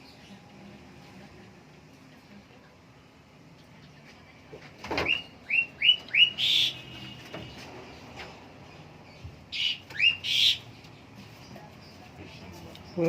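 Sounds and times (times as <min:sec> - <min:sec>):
harsh rasping bird call: 0:05.2 - 0:07.3, 0:09.5 - 0:10.7.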